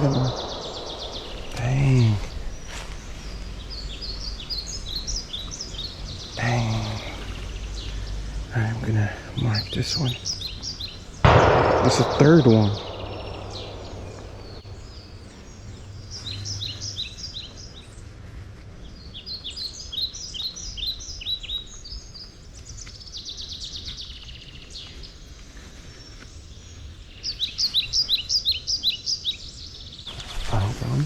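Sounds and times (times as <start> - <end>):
low outdoor rumble: 0.0 - 16.0
songbirds chirping: 0.0 - 31.0.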